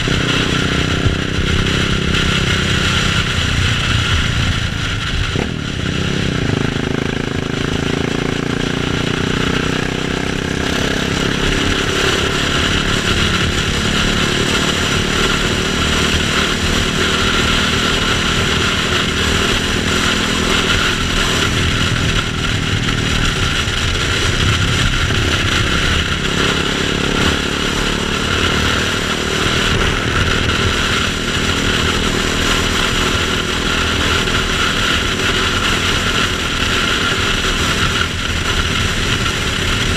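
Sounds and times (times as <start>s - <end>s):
wind noise: 0.0s - 8.4s, 9.0s - 39.9s
motorcycle engine running: 0.0s - 39.9s.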